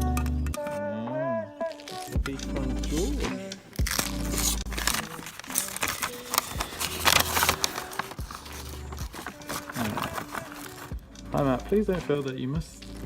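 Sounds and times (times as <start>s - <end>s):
packaging tearing and crinkling: 1.7s - 2.2s, 3.8s - 10.9s
music with pulsing beat: 2.2s - 4.8s, 8.0s - 9.6s, 10.3s - 13.0s.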